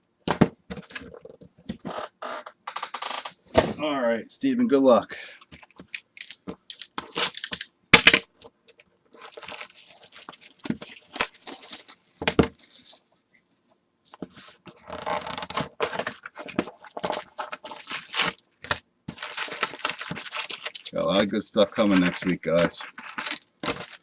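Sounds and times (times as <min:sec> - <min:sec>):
foil wrappers tearing and crinkling: 0:05.5 - 0:08.4, 0:09.2 - 0:13.0, 0:14.8 - 0:24.0.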